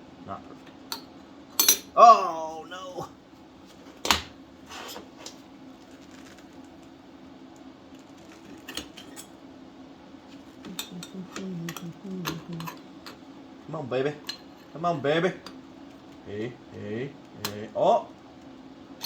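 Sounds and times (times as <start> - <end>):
steady low hum: 0.0 - 19.0
metal tools clinking: 1.6 - 1.9.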